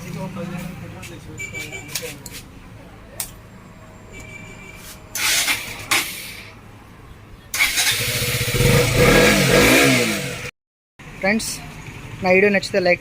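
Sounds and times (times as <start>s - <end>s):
motorcycle engine revving: 7.5s - 11.2s.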